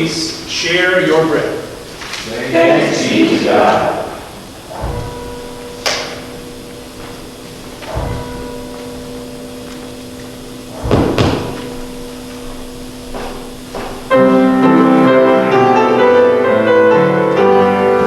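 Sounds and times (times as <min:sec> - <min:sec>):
piano music with full chords: 0:03.9 - 0:18.0
loud thump: 0:04.7 - 0:06.1, 0:07.9 - 0:08.6, 0:10.8 - 0:12.1
soft knocks: 0:07.0 - 0:14.1.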